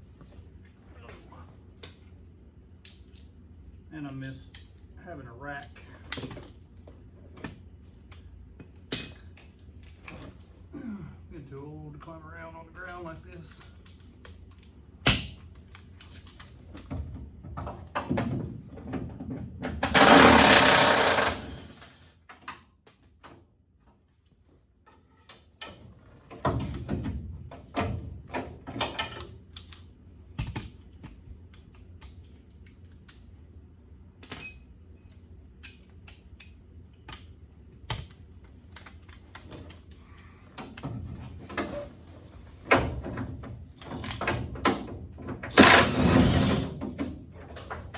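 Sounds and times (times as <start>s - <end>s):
clinks of tools and metal parts: 1.8s - 5.0s, 8.1s - 10.5s, 19.9s - 23.4s, 28.7s - 29.8s, 34.2s - 37.4s
impact wrench running: 19.9s - 22.0s, 45.6s - 46.7s.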